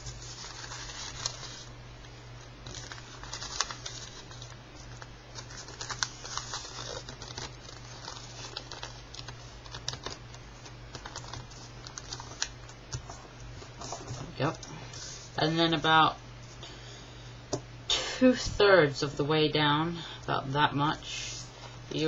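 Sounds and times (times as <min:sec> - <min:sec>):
paper being folded and creased: 0:00.0 - 0:01.7, 0:02.6 - 0:15.3
steady low hum: 0:00.0 - 0:22.0.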